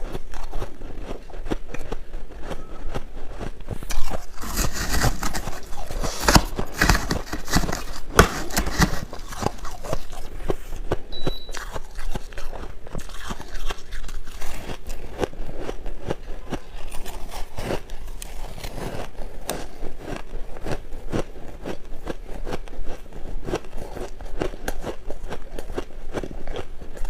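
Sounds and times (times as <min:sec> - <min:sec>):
shaved ice crunching: 0:03.8 - 0:10.4.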